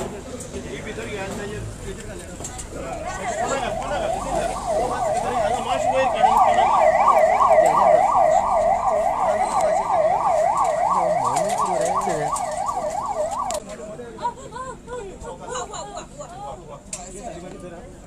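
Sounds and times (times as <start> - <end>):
siren yelping: 3.1 - 13.6.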